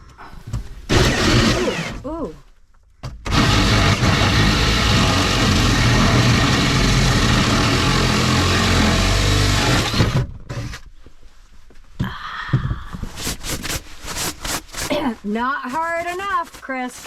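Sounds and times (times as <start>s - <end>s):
power drill running under load: 0.9s - 2.0s, 3.3s - 10.7s.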